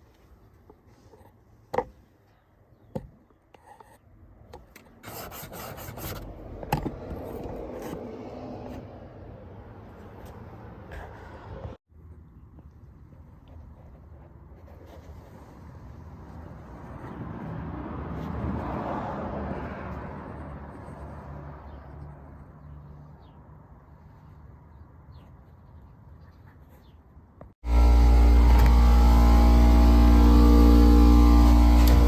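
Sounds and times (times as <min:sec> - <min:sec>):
machine humming with steady tones: 0:27.6 - 0:32.0.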